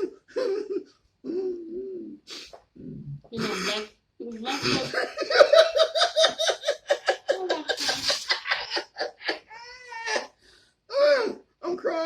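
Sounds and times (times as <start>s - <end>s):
person laughing hard: 4.6s - 10.3s.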